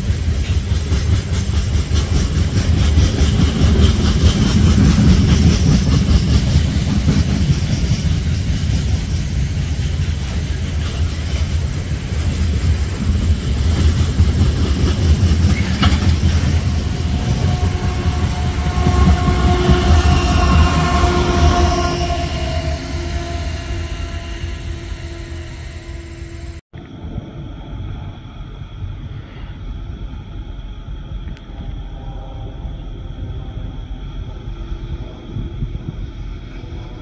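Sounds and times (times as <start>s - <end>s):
train rumbling past: 0.0s - 37.0s.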